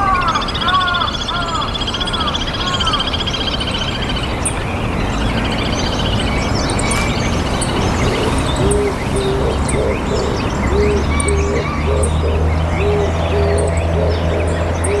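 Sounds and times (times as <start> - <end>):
bird low hooting notes: 5.1 - 15.0.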